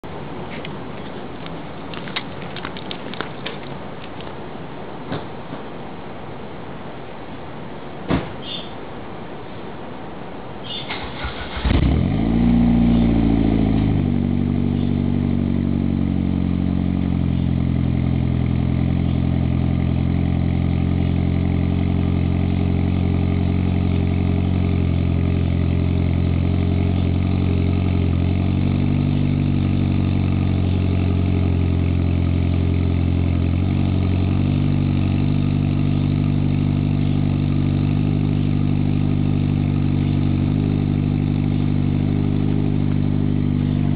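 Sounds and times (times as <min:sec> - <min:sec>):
car engine idling: 0:10.9 - 0:43.9.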